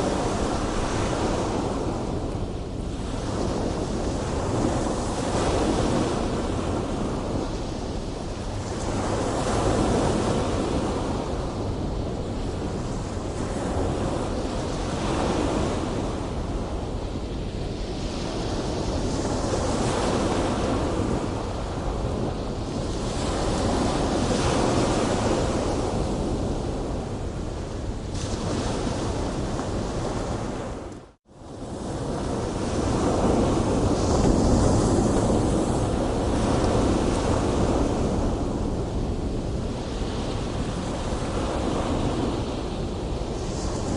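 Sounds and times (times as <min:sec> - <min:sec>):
ocean waves breaking: 0:00.0 - 0:07.5, 0:18.3 - 0:43.9.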